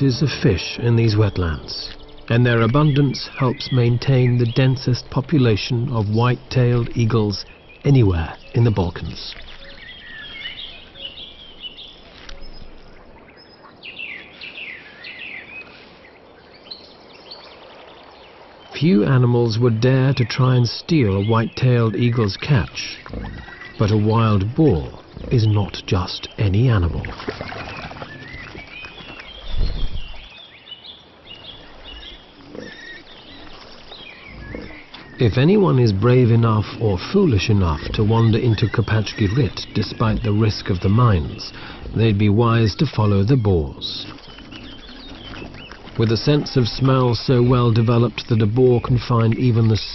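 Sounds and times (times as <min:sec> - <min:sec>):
animals chirping and yelping: 0:00.0 - 0:16.0, 0:19.9 - 0:30.4, 0:31.0 - 0:49.9
eagle calling: 0:18.7 - 0:30.4, 0:31.4 - 0:49.9.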